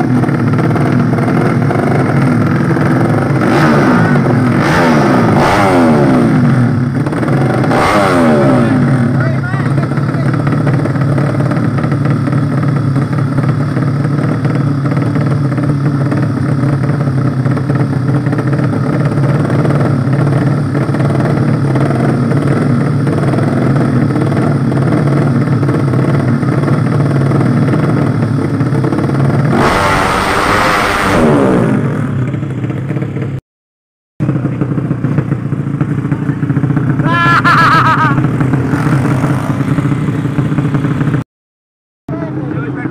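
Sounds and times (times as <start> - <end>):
motorcycle engines running: 0.0 - 33.4, 34.2 - 41.2, 42.1 - 42.9
motorcycle passing by: 34.3 - 41.2.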